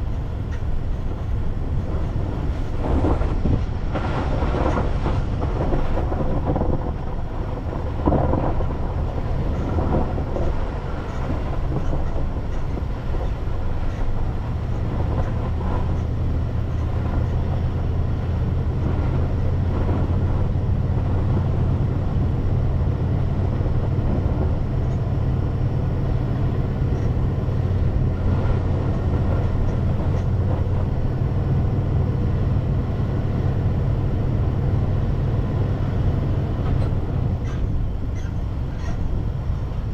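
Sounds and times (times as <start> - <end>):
knocks and rattles: 0.0 - 17.6
car engine and tyres rumbling: 0.0 - 39.9.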